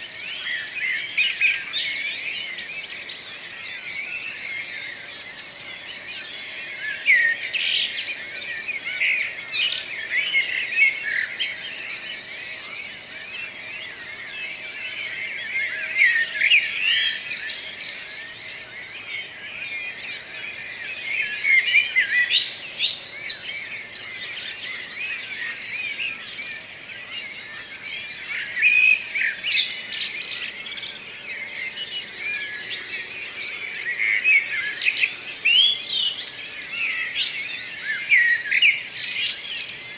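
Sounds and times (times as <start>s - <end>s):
birds singing in chorus: 0.0s - 39.9s.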